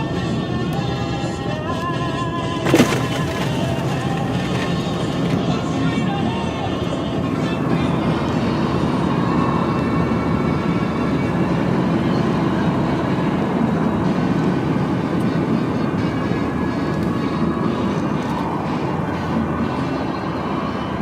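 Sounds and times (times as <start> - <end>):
diesel engine running: 0.0 - 21.0
tyres rolling on snow: 2.6 - 6.5.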